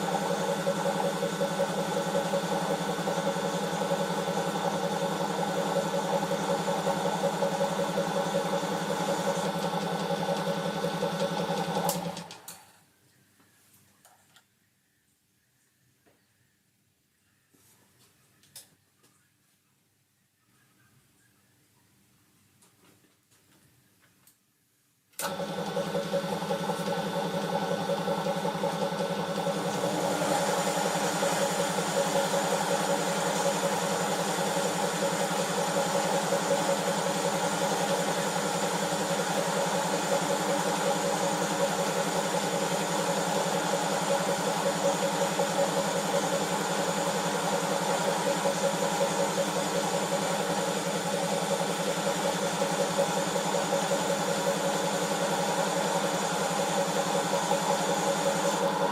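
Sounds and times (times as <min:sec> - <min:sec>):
belt sander motor whirring: 0:25.2 - 0:58.9.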